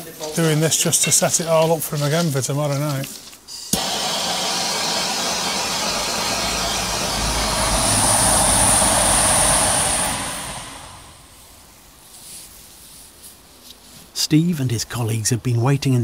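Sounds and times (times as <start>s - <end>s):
train passing by: 3.8s - 12.0s
thin high whine: 4.5s - 11.9s.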